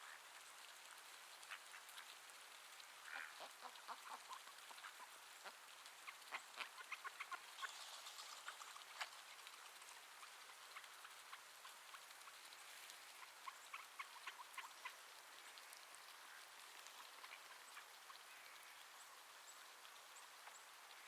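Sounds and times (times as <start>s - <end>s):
budgerigar chirps and clicks: 13.2s - 15.0s.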